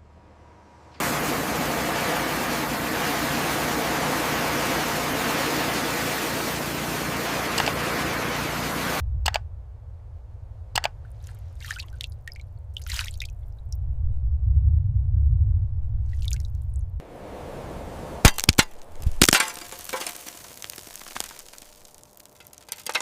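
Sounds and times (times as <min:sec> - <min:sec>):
water rushing: 0:01.0 - 0:09.0, 0:10.8 - 0:13.4, 0:17.0 - 0:23.0
low rumble: 0:08.8 - 0:18.0.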